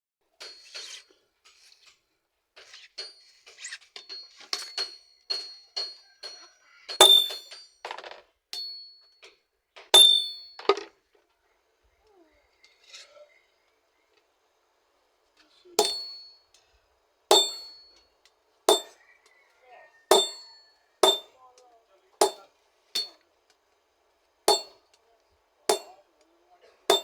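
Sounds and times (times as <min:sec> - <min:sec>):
hammer striking metal on anvil: 0:07.0 - 0:07.6, 0:10.0 - 0:10.6, 0:15.8 - 0:16.3, 0:17.3 - 0:18.0, 0:18.7 - 0:19.0, 0:20.1 - 0:21.4, 0:22.2 - 0:23.2, 0:24.5 - 0:24.8, 0:25.7 - 0:26.0.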